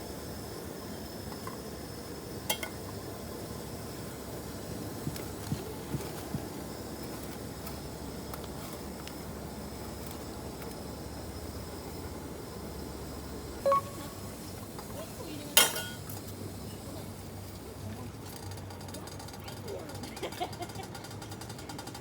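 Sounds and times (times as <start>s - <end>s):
metal cookware clinking: 2.5s - 2.8s, 15.6s - 16.1s.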